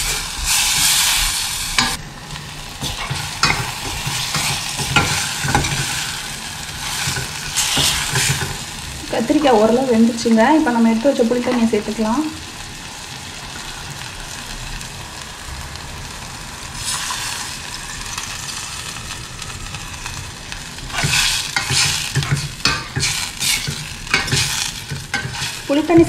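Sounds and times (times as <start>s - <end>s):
vegetables sizzling in oil: 0.0s - 26.0s
steel ladle clattering on pot: 2.8s - 6.0s, 7.0s - 8.6s, 21.0s - 26.0s.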